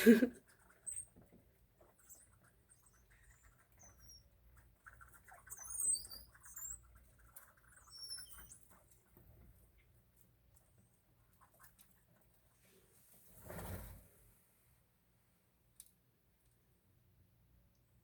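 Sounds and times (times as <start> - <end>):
small birds chirping: 0.5 - 9.6.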